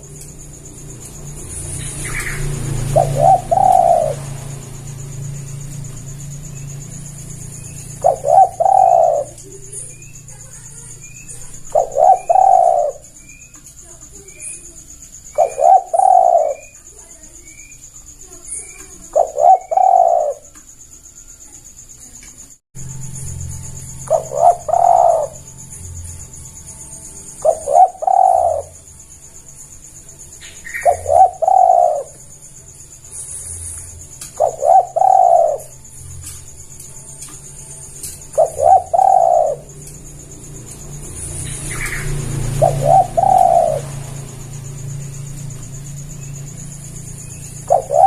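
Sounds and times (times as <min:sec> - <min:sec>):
dove cooing: 0:00.0 - 0:20.6, 0:23.8 - 0:29.2, 0:30.3 - 0:48.0
faint bird chirps: 0:00.0 - 0:48.0.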